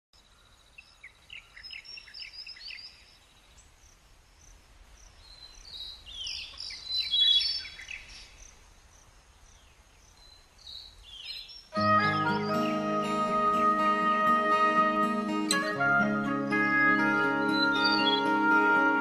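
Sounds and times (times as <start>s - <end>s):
birds chirping and calling: 17.4s - 18.6s.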